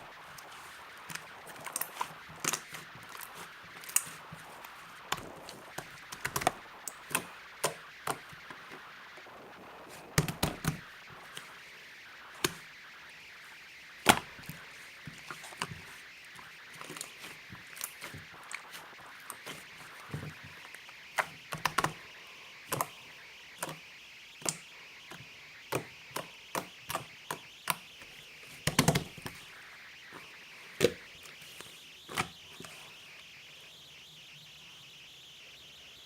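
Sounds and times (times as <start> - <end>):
faint steady hiss: 0.0 - 36.0.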